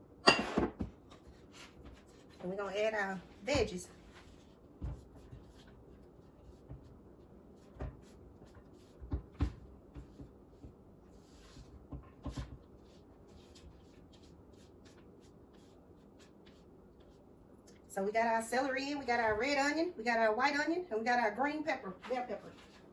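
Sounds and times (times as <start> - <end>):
kitchen bowls clattering: 0.2 - 0.8.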